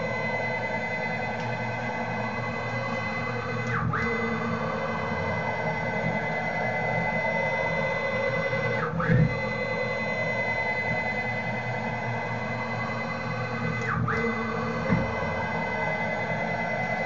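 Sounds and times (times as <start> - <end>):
stepper motor whine: 0.0 - 17.0.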